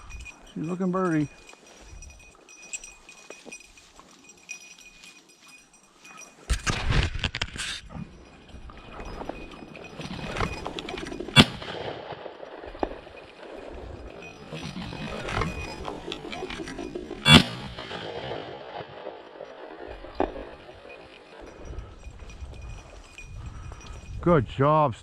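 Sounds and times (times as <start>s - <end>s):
shotgun shot: 11.4s - 12.3s, 17.3s - 18.5s.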